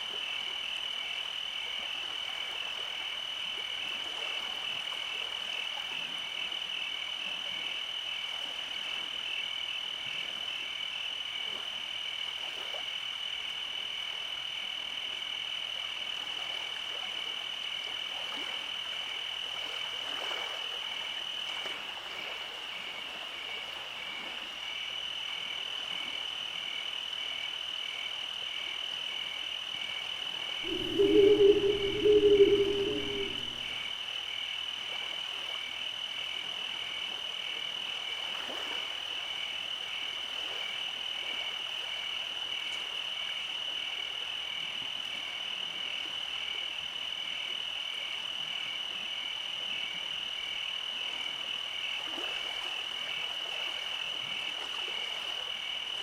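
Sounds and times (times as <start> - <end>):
frogs and insects trilling: 22.3 - 34.8.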